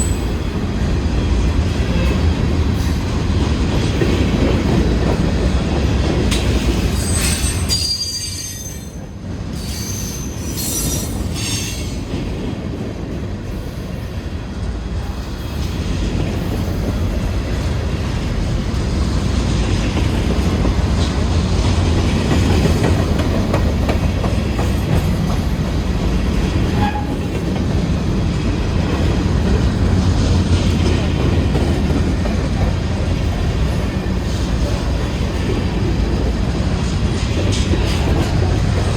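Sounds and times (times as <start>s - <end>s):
train wheels rumbling on rail: 0.0s - 38.9s
high-pitched wheel squeals: 7.0s - 9.0s, 9.6s - 11.8s.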